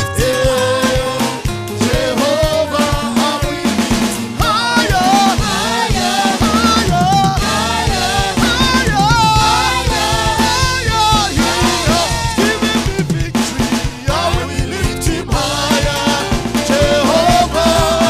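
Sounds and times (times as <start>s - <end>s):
drum kit and bass: 0.0s - 18.0s
voices singing: 0.0s - 18.0s.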